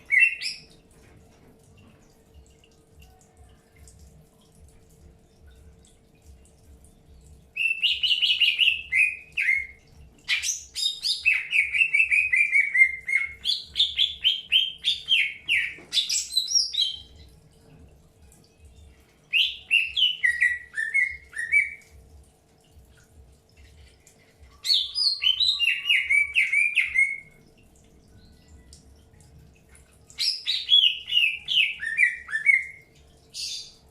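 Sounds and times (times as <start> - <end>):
bird chirping song: 0.0 - 0.8, 6.9 - 17.4, 18.6 - 22.0, 24.4 - 27.5, 30.0 - 33.9.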